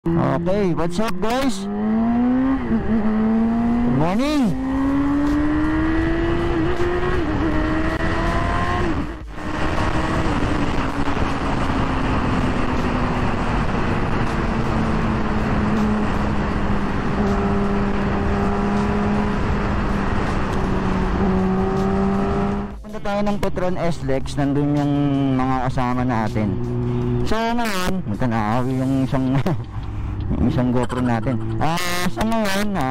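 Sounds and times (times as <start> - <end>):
motorcycle engine revving: 0.1 - 23.1, 24.5 - 32.9
wind rush: 5.4 - 21.4.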